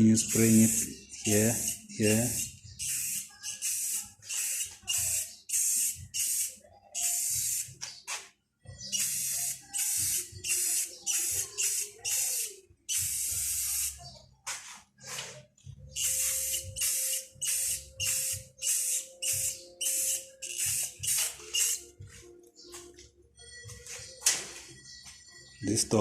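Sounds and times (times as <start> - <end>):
aerosol paint can spraying: 0.3 - 7.8, 9.0 - 14.0, 16.0 - 21.8.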